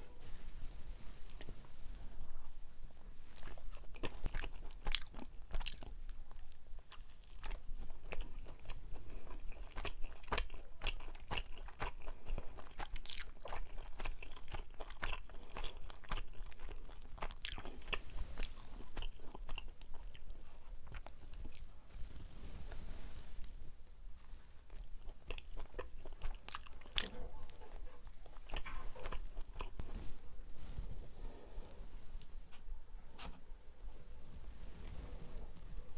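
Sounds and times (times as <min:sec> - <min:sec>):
chewing soft rice cake: 0:03.3 - 0:30.2.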